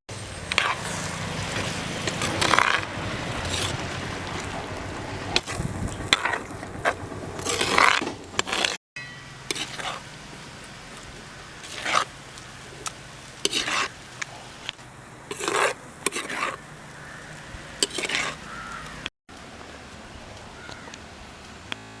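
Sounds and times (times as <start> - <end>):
spoon scraping in a cooking pot: 9.5 - 10.1, 11.6 - 12.1, 13.4 - 14.0, 15.3 - 16.6, 17.8 - 18.4.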